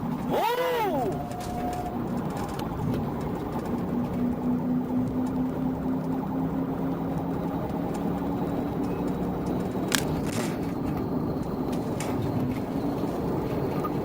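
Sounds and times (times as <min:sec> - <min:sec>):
sharp click: 0:09.9 - 0:10.4.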